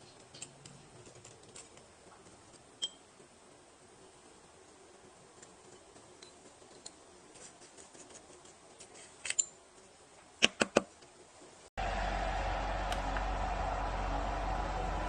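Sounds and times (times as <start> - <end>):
fan whirring: 11.8 - 15.0
steady hum: 11.8 - 15.0.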